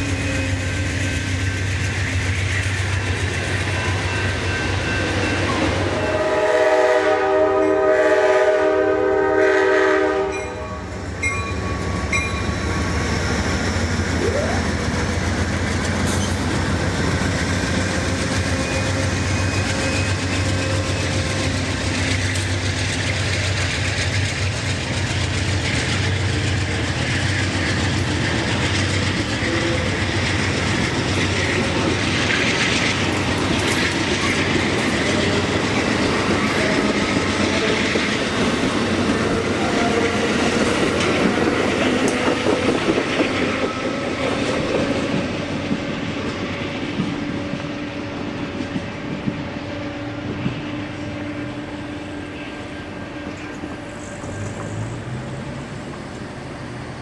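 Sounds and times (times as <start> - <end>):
train rumbling past: 0.0 - 57.0
train horn: 5.8 - 10.9, 29.3 - 30.0, 39.1 - 42.9, 49.5 - 54.4
wheels clattering on rail: 14.8 - 47.6.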